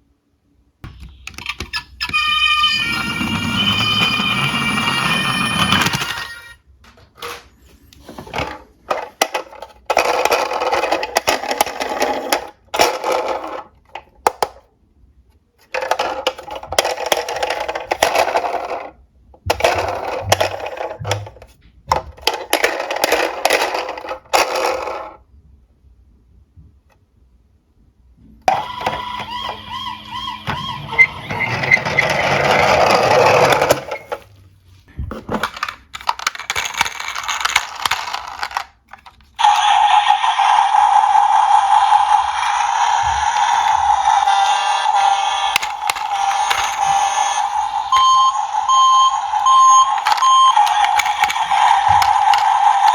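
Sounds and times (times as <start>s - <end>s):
warbling electronic toy siren: 1.2s - 6.6s, 28.5s - 33.6s, 39.4s - 52.9s
toy cars rattling down track: 1.5s - 6.6s, 8.9s - 14.6s, 15.8s - 21.4s, 22.0s - 25.2s, 28.5s - 34.2s, 35.4s - 52.9s.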